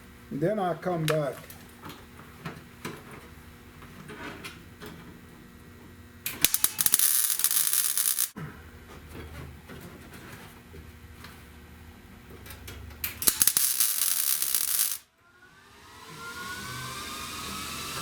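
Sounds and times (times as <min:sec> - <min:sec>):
welding arc crackling: 0:06.3 - 0:08.4, 0:13.1 - 0:15.1.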